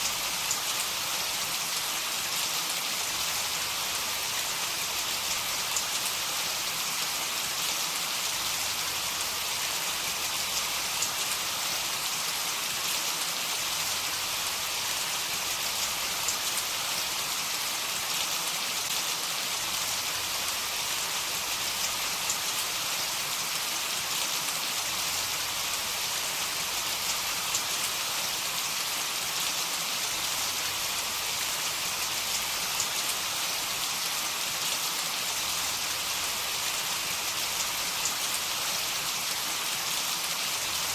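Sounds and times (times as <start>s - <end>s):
heavy rain hissing: 0.0s - 40.9s
rain drops ticking: 0.0s - 40.9s.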